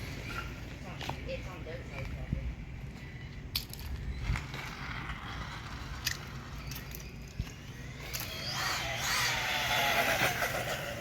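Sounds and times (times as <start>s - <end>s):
motor whining: 4.5s - 11.0s.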